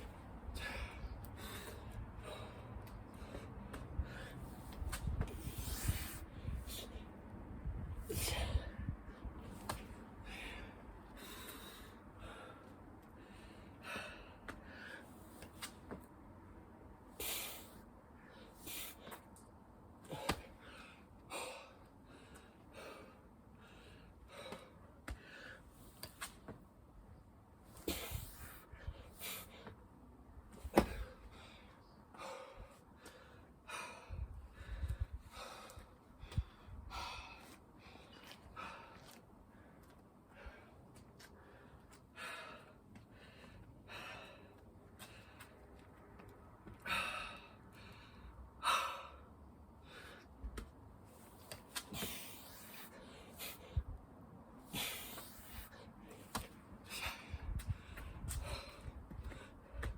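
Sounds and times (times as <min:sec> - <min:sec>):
man breathing hard: 0:00.4 - 0:15.4, 0:20.0 - 0:26.0, 0:30.7 - 0:45.9, 0:46.6 - 0:50.5, 0:51.8 - 0:59.9
person breathing hard: 0:30.8 - 0:45.7, 0:46.7 - 0:50.4, 0:54.6 - 0:59.9.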